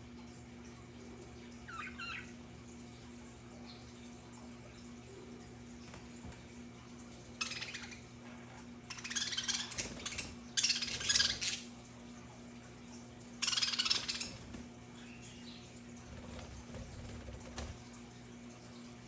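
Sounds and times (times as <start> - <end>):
budgerigars chattering: 8.9 - 11.6, 13.4 - 14.4.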